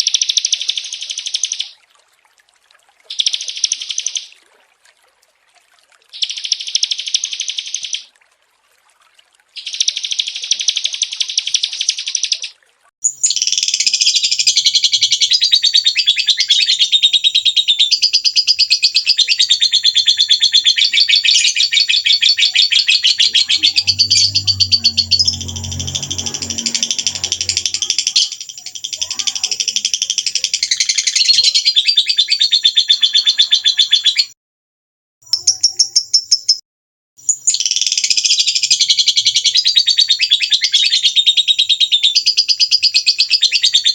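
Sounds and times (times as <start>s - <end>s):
songbird trilling: 3.1s - 4.4s, 6.2s - 8.1s, 9.6s - 34.3s.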